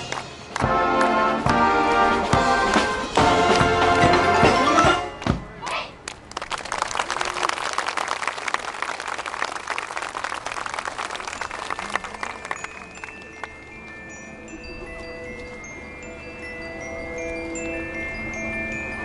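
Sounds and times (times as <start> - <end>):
audience clapping: 0.0 - 1.2, 6.0 - 14.0
brass marching band playing: 0.5 - 5.2.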